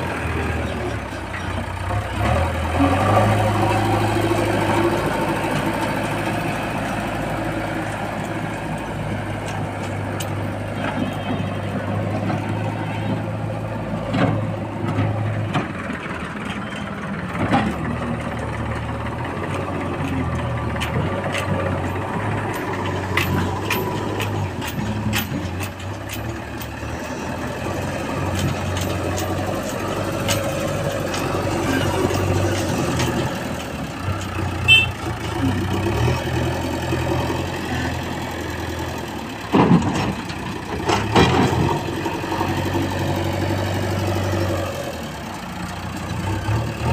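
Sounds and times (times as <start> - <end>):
backhoe diesel engine working: 0.0 - 46.9
knocks and clanks: 14.0 - 34.4, 39.4 - 42.6.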